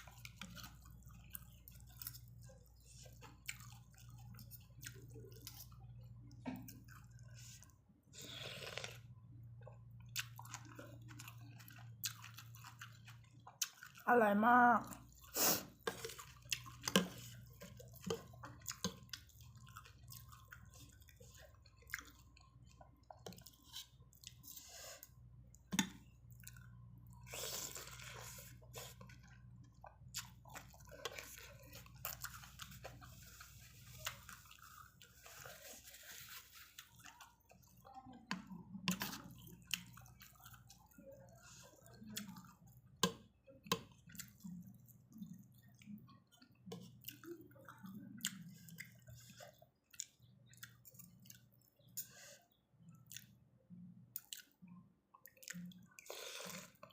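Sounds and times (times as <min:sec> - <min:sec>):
person chewing and smacking: 0:00.0 - 0:14.1, 0:14.8 - 0:56.9.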